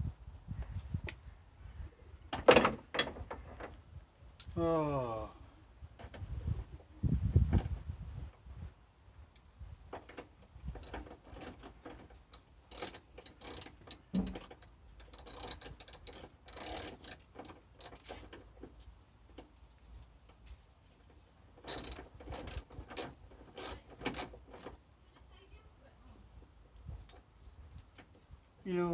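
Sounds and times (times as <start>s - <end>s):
socket ratchet clicking: 12.7s - 18.0s.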